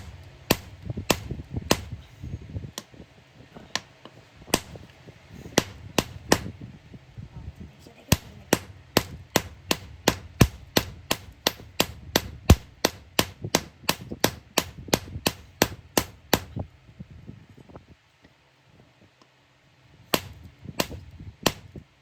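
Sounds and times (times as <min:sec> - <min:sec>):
hammer striking iron: 0:00.0 - 0:02.0, 0:04.5 - 0:04.8, 0:05.6 - 0:06.5, 0:08.1 - 0:16.6, 0:20.1 - 0:21.7.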